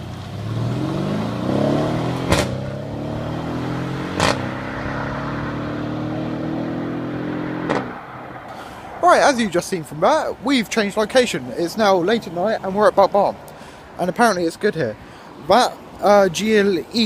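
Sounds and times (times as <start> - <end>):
car engine accelerating hard: 0.0 - 8.4
sharp crack at upshift: 2.2 - 2.8, 4.2 - 4.5, 7.6 - 8.0.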